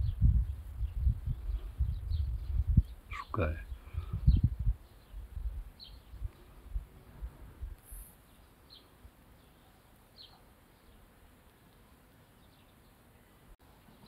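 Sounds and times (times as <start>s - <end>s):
faint bird chirps: 7.8s - 11.0s.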